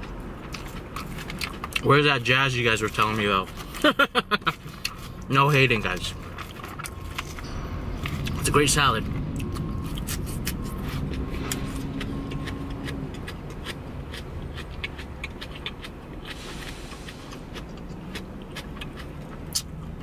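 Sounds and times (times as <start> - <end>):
chewing crisp lettuce: 0.0 - 3.9, 9.4 - 20.0
low car cabin hum: 0.0 - 16.4.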